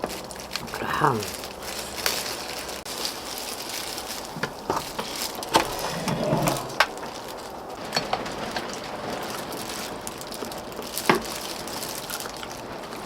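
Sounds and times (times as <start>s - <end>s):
chewing and mouth noises: 0.0s - 7.8s.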